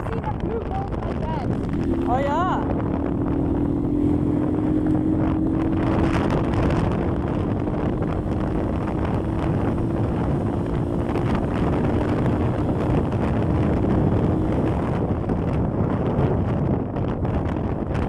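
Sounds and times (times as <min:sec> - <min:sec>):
motorcycle engine steady note: 0:00.0 - 0:18.0
wind buffeting microphone: 0:00.0 - 0:18.0.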